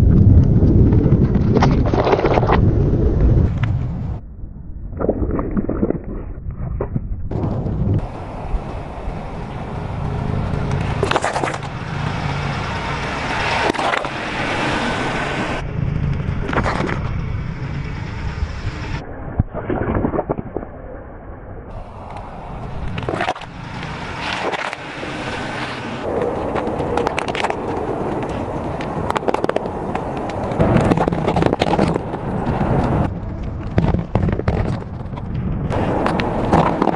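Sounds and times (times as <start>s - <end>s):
objects crunching and cracking: 0.3s - 2.8s, 26.1s - 36.9s.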